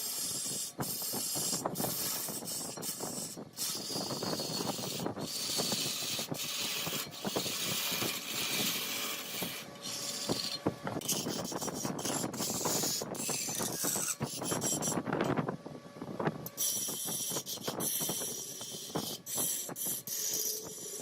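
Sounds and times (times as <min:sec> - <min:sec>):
lathe tool cutting wood: 0:00.0 - 0:14.9.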